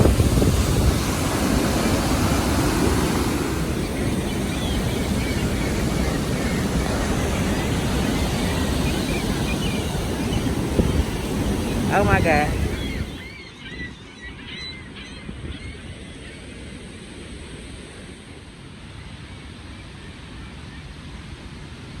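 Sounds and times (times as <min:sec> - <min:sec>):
waterfall roaring: 0:00.0 - 0:13.2.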